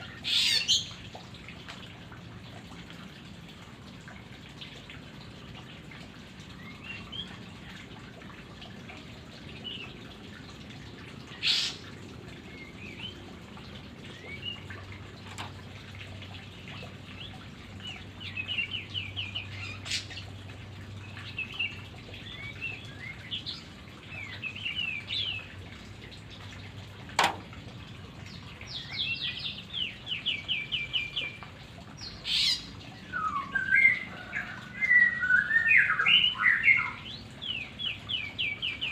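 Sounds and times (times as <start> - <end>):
bird singing with trills: 32.0 - 38.9.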